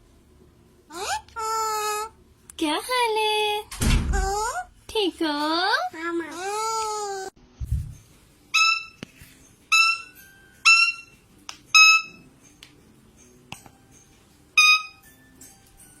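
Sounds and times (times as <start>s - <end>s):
parrot whistling calls: 8.5s - 9.0s, 9.7s - 12.2s, 14.6s - 15.0s.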